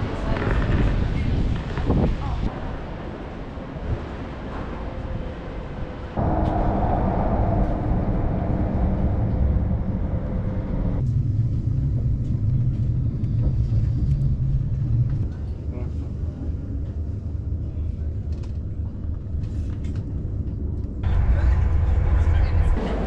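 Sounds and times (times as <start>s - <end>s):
low vehicle rumble: 4.2s - 18.2s, 19.6s - 23.0s
steady low hum: 6.2s - 18.3s.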